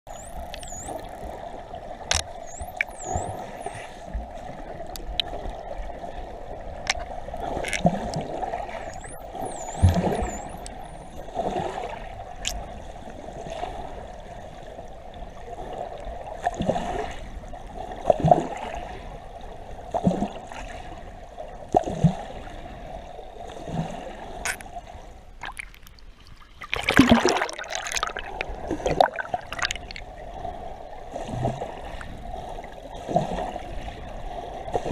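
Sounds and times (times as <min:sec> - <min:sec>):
dolphin clicks: 0:00.1 - 0:01.4, 0:02.1 - 0:03.9, 0:06.8 - 0:11.3, 0:12.4 - 0:12.7, 0:24.4 - 0:24.8
dolphins whistling: 0:00.1 - 0:01.4, 0:02.2 - 0:04.1, 0:08.8 - 0:11.4
water splashing: 0:00.1 - 0:12.9, 0:24.4 - 0:30.4
water gurgling and sloshing: 0:00.1 - 0:34.9.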